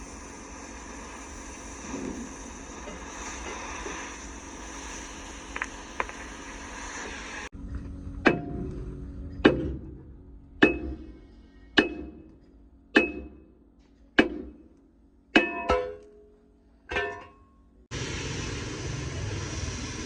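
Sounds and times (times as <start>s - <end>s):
hammer striking metal: 8.2s - 8.7s, 9.3s - 10.0s, 10.6s - 11.2s, 11.8s - 13.5s, 14.2s - 14.7s, 15.3s - 16.3s, 16.9s - 17.4s.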